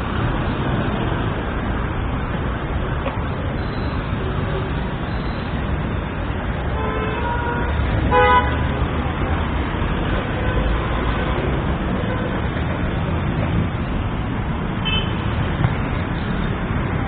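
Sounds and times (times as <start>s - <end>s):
car engines and tyre noise: 0.0s - 17.0s
car horn: 6.7s - 8.6s, 14.8s - 15.3s.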